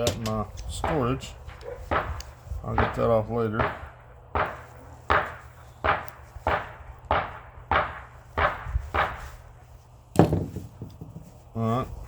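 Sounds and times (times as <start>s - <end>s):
sharp knocks on metal: 2.8s - 9.2s, 10.2s - 11.2s.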